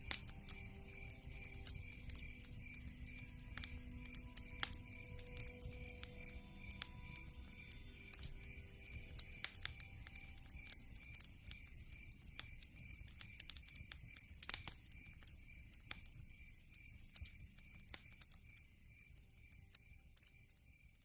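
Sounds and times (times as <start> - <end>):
campfire crackling and popping: 0.0 - 21.0
night insects chirping: 0.0 - 21.0.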